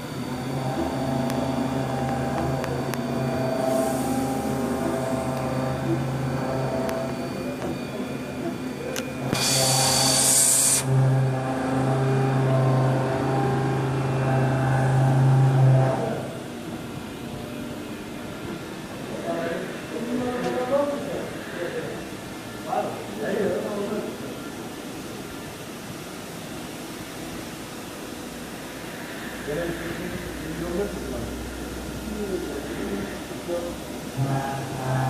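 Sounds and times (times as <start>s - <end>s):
machine humming: 0.0s - 35.0s
machinery hiss: 3.6s - 5.2s, 9.2s - 10.9s
loud hiss: 9.3s - 10.9s.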